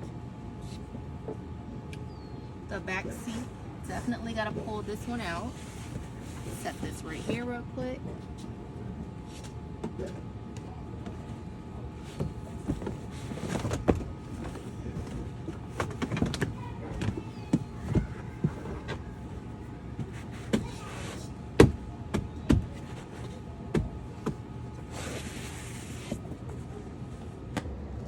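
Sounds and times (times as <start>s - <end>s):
floor mats knocking and rustling: 12.0s - 19.2s, 19.9s - 26.7s.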